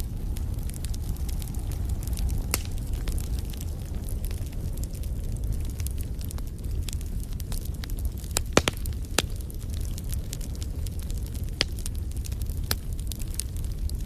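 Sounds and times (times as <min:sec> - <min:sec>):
fireplace fire crackling: 0:00.0 - 0:14.0.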